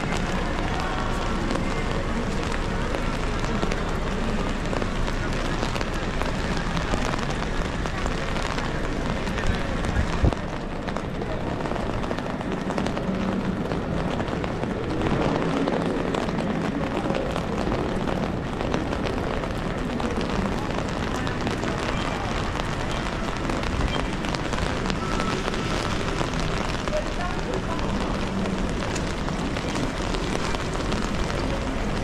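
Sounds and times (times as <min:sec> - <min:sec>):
indistinct voices: 0:00.0 - 0:32.0
rain on street: 0:00.0 - 0:32.0.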